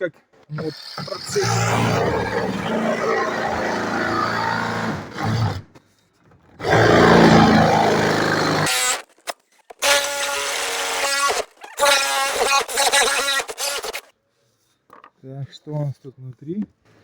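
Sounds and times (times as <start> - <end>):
rotary hammer drilling into wall: 0.6 - 5.8, 6.6 - 14.1.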